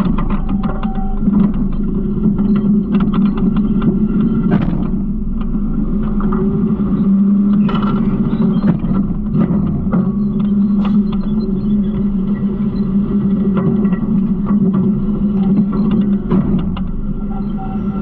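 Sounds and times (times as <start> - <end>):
knocks and rattles: 0.0 - 6.4.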